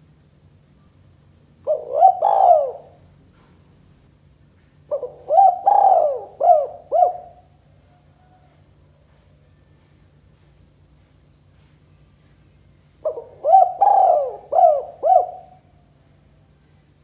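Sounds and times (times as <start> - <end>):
dove cooing: 1.6 - 3.0, 4.9 - 7.4, 13.0 - 15.7.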